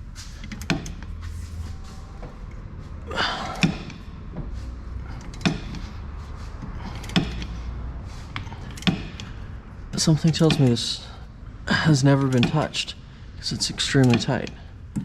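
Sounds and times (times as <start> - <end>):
sharp metal knocks: 5.2 - 5.9, 7.0 - 7.6, 8.4 - 9.3.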